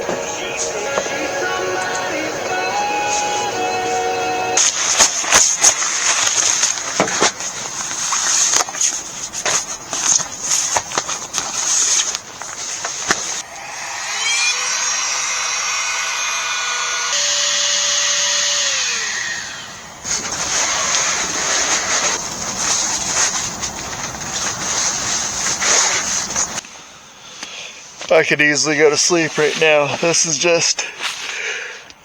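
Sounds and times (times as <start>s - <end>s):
knocking and rustling of gear: 4.7s - 13.4s
small motor whirring: 12.8s - 23.6s.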